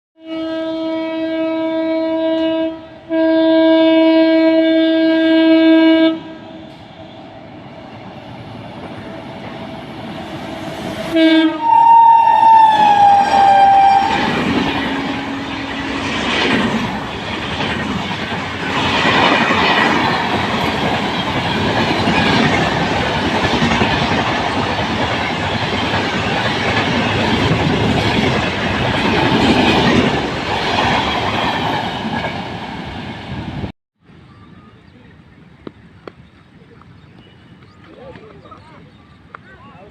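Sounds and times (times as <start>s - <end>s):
locomotive horn blasts: 0.2s - 7.3s, 11.1s - 16.2s
train rumbling: 2.0s - 33.7s.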